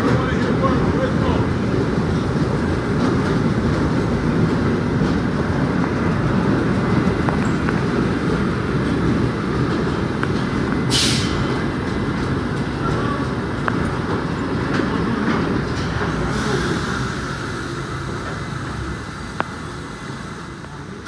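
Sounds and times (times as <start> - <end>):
subway train rumbling: 0.0 - 21.0
short burst of hiss: 10.9 - 11.4.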